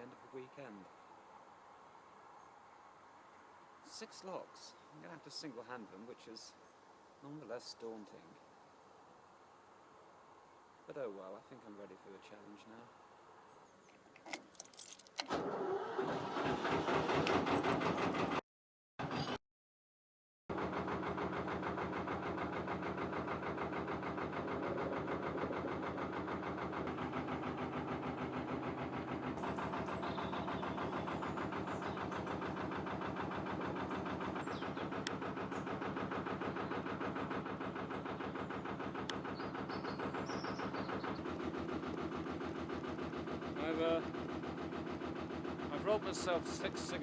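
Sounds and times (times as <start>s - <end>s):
diesel engine chugging: 20.5s - 47.0s.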